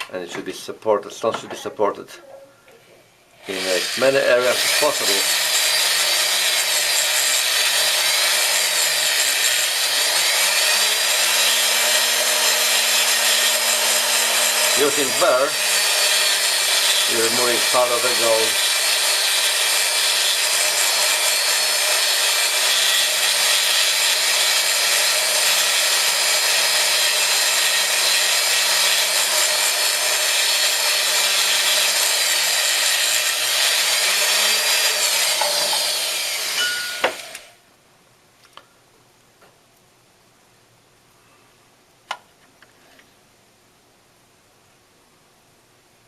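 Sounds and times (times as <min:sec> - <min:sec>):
rotary burr grinding whir: 0:03.4 - 0:37.6.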